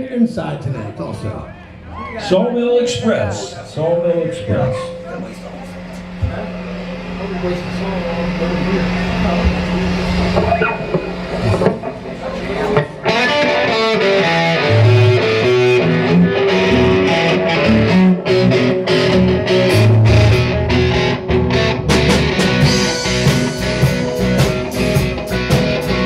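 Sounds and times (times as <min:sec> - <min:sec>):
live rock band playing: 0:10.4 - 0:26.0.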